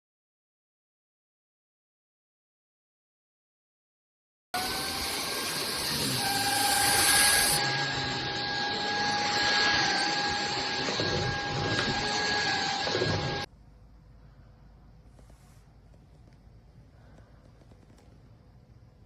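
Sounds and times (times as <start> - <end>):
stick vacuum cleaner running: 4.6 - 13.5.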